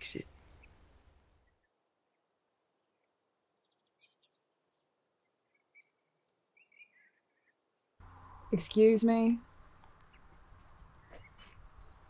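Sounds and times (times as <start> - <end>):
insects droning: 1.1 - 12.0
faint bird chirps: 2.9 - 12.0.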